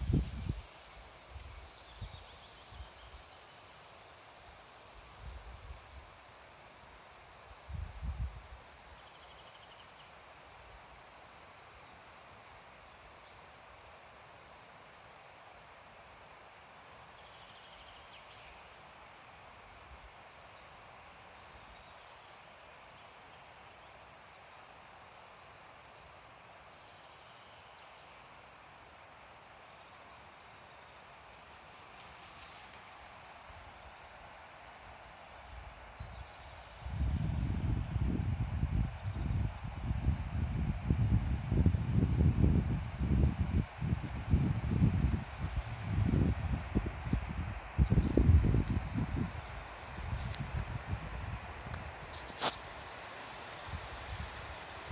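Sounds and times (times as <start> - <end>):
wind buffeting microphone: 0.0 - 0.8, 36.8 - 52.6
wind in trees: 0.0 - 54.9.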